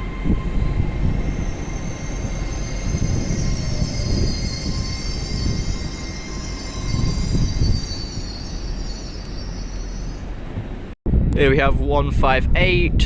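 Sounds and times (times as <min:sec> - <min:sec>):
train wheels squealing on rails: 0:00.0 - 0:11.0
moving train rumble: 0:00.0 - 0:11.8.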